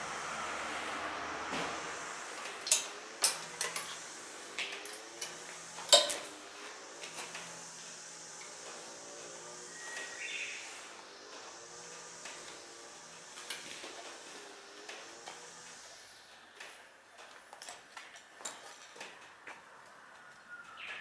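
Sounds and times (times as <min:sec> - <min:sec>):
steady hiss: 0:00.0 - 0:16.4.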